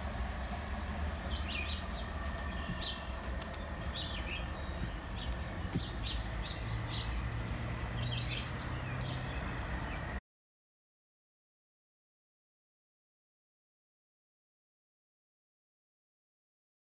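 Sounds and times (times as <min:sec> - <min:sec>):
low outdoor rumble: 0:00.0 - 0:10.2
small songbirds chirping: 0:00.7 - 0:10.2.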